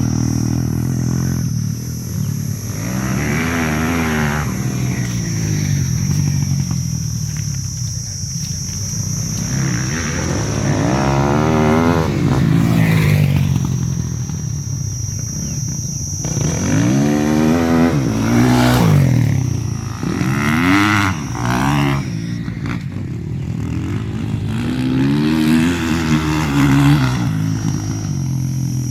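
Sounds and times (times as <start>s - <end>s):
dirt bike engines revving: 0.0s - 28.9s.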